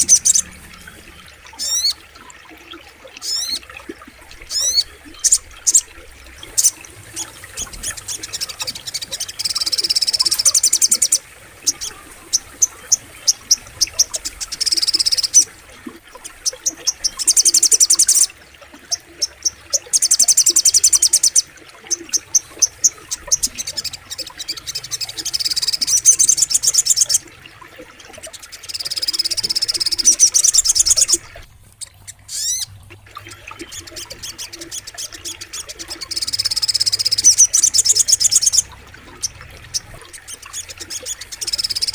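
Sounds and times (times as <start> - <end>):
bird chattering trills: 0.0 - 2.0, 31.8 - 32.7, 33.3 - 41.9.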